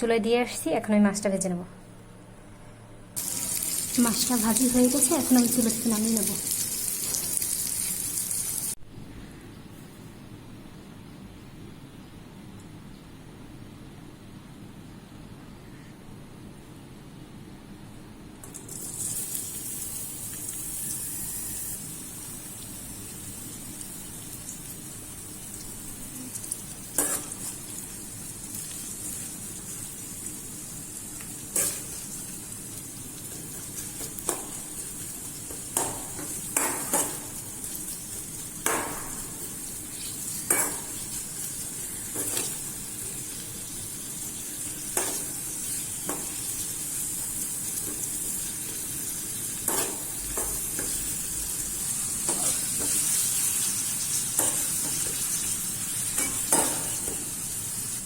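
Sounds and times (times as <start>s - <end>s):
food sizzling in hot oil: 3.2s - 8.8s, 18.4s - 58.0s
spatula scraping a pan: 31.6s - 32.1s.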